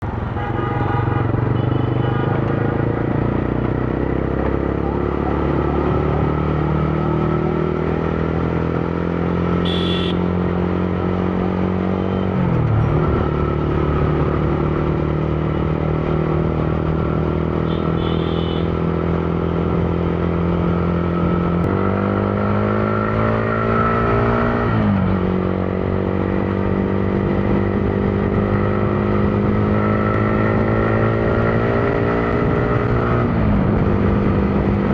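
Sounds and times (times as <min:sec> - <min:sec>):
motorcycle engine running: 0:01.2 - 0:18.7.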